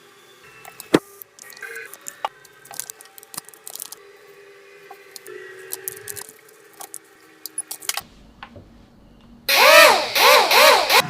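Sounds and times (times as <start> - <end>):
paper crinkling: 0.7 - 4.0, 5.1 - 8.0.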